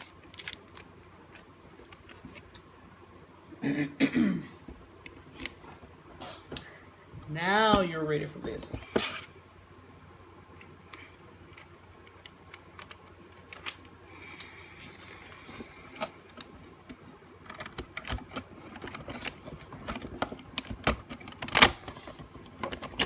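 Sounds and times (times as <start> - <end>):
plastic parts clicking: 0.0 - 2.6, 10.6 - 14.5, 15.1 - 23.0.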